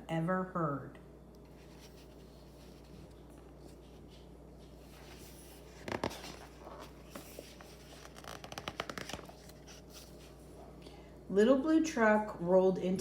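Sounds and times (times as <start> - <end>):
paper pages rustling: 1.5 - 10.4.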